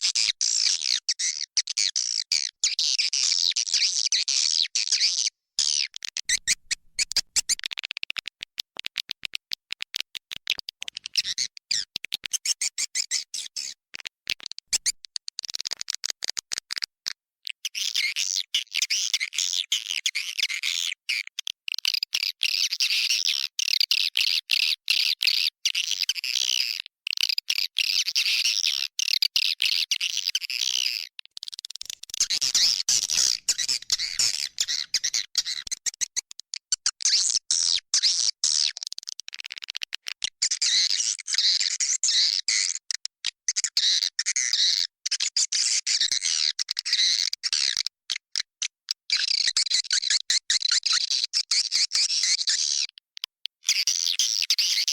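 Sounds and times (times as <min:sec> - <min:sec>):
swiftlets chirping and twittering: 0:32.2 - 0:35.7.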